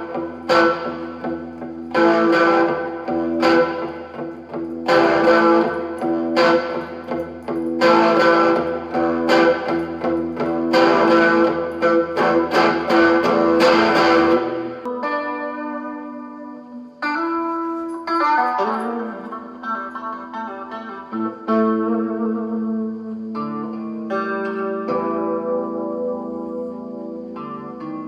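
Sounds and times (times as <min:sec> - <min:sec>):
electric guitar strummed: 0:00.0 - 0:28.0.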